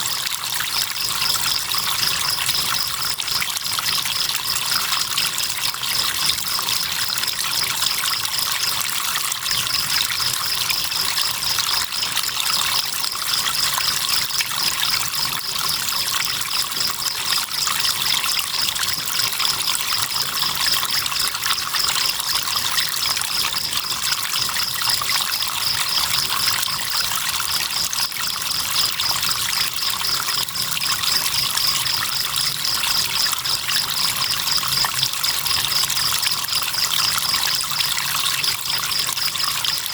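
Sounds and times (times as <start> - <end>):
crickets trilling: 0.1 - 39.9.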